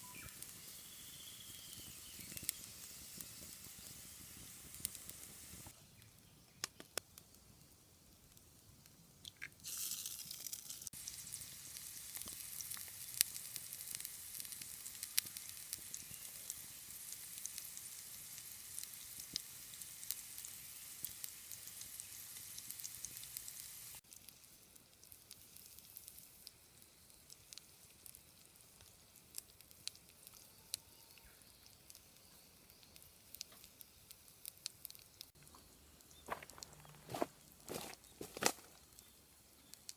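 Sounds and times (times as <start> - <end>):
food sizzling in a frying pan: 0.0 - 5.8, 9.4 - 35.4
fire crackling: 0.0 - 39.9.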